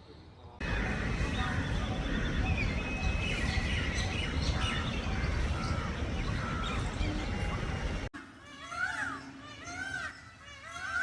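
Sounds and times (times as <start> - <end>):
small birds chirping: 0.6 - 8.1
steady low rumble: 0.6 - 8.1.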